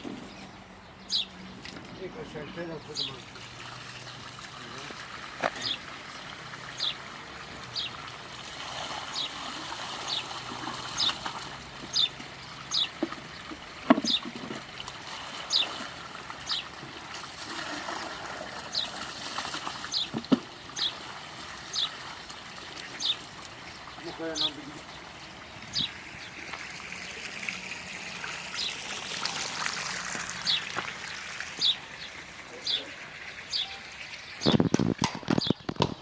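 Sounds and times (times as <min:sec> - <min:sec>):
bird chirping: 0:00.0 - 0:03.3, 0:11.9 - 0:13.4, 0:16.4 - 0:16.7, 0:19.9 - 0:21.0, 0:21.7 - 0:22.0, 0:22.9 - 0:27.2, 0:31.6 - 0:36.0
water trickling: 0:01.4 - 0:35.7.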